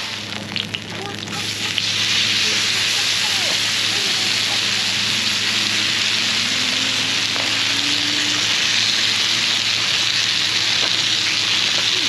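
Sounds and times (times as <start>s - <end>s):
onions and peppers sizzling in oil: 0.0s - 12.0s.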